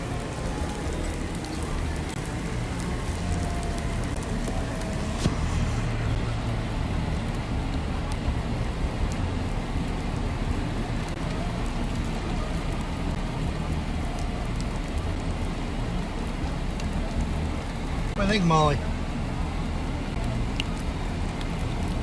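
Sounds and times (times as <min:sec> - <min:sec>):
low rumble: 0:00.0 - 0:13.3
heavy rain: 0:00.0 - 0:22.0.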